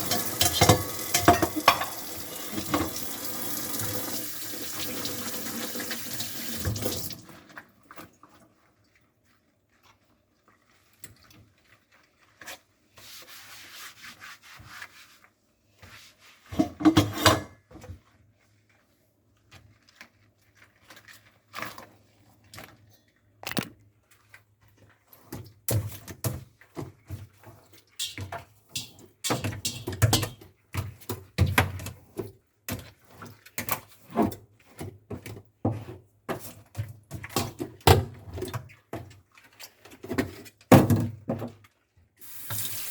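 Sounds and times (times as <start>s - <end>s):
dishes knocking and clattering: 0.0s - 3.0s, 16.6s - 17.6s, 28.0s - 30.4s
dishes rubbing and scraping: 0.0s - 3.0s, 12.3s - 17.9s, 27.1s - 30.4s.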